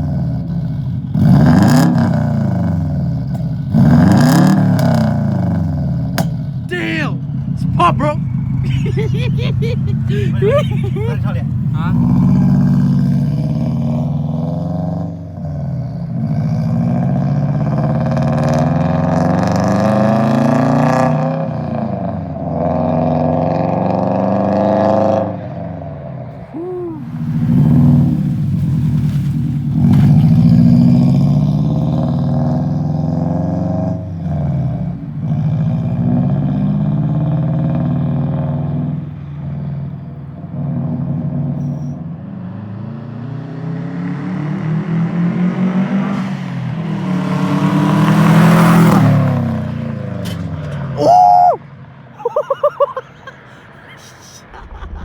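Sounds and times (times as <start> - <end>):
exhaust note: 0.0 - 18.2
car engine accelerating through gears: 0.0 - 51.0.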